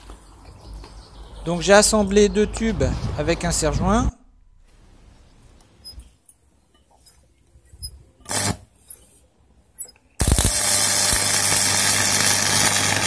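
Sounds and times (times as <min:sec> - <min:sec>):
arc welder crackling hiss: 0:10.2 - 0:13.0.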